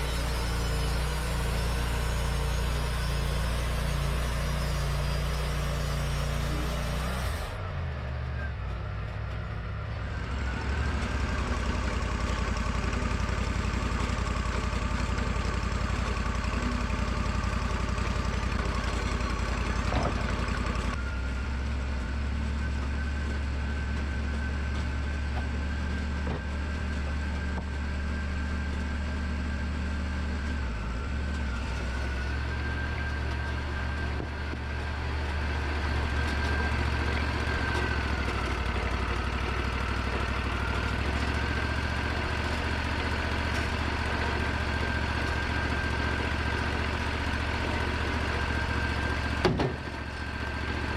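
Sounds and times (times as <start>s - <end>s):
band sawmill engine hum and whine: 0.0s - 50.9s.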